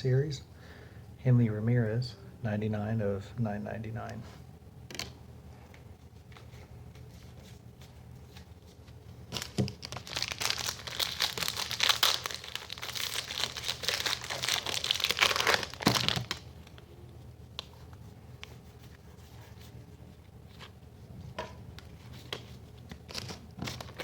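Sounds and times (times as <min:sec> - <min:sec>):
foil wrapper crinkling: 0:09.3 - 0:16.8.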